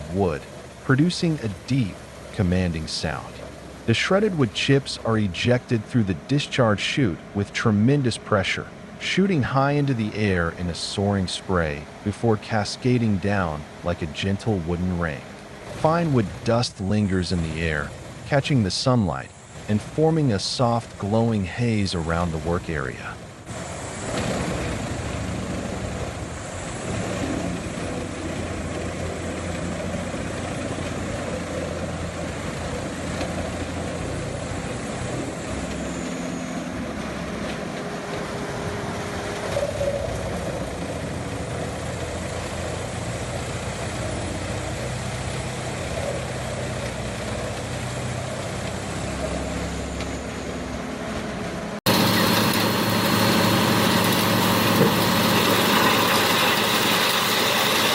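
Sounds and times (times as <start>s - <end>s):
wood chipper engine drone: 0.0s - 57.9s
wood being shredded: 51.9s - 57.9s.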